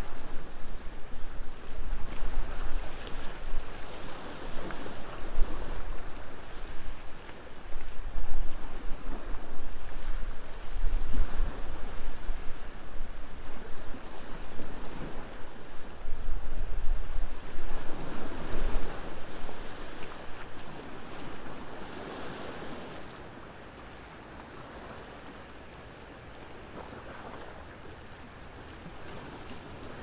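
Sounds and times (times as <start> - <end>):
wind rumbling on microphone: 0.0 - 23.1
ocean waves washing ashore: 0.0 - 30.0.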